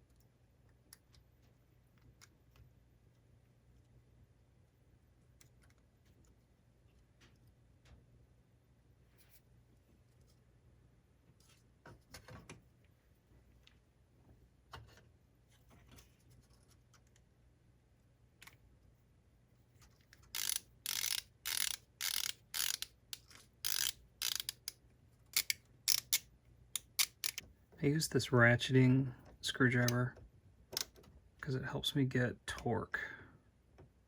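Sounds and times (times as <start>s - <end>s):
ratcheting screwdriver clicking: 20.3s - 24.8s, 25.4s - 26.2s, 26.8s - 27.4s
faint handling clicks: 29.7s - 30.1s.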